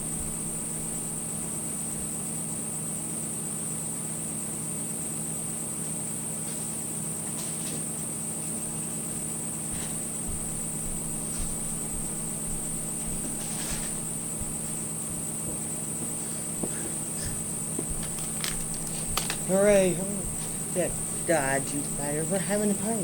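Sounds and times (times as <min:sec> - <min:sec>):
low steady hum: 0:00.0 - 0:02.1, 0:08.4 - 0:23.0
faint clicks: 0:17.9 - 0:19.5.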